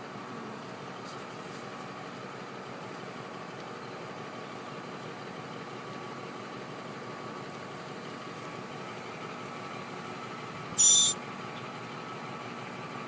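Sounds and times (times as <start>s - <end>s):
faint high whine: 10.8s - 11.2s.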